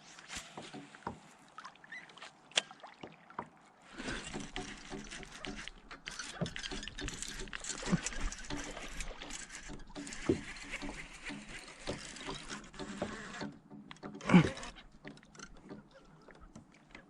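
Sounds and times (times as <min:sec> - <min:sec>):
gear knocking and rustling: 0:04.0 - 0:17.0.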